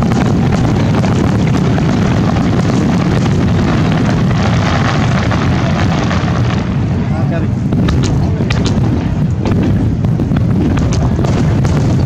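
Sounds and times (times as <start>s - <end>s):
fireworks booming: 0.0s - 12.0s
fireworks crackling: 0.0s - 12.0s.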